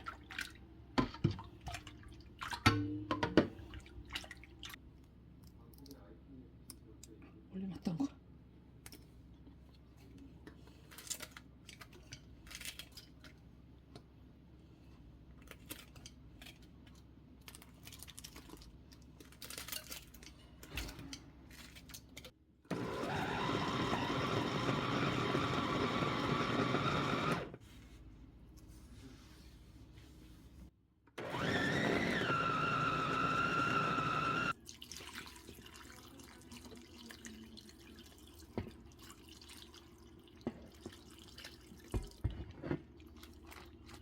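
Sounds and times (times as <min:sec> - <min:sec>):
electric blender running: 0:22.7 - 0:27.6, 0:31.2 - 0:34.5.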